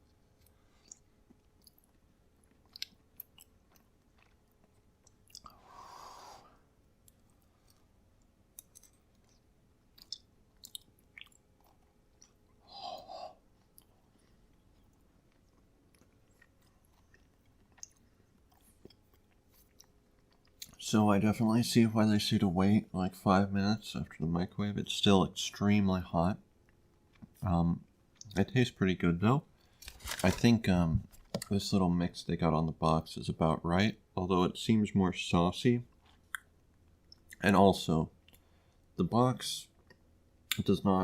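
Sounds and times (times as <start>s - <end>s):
person chewing: 0.0s - 5.5s, 7.0s - 20.8s.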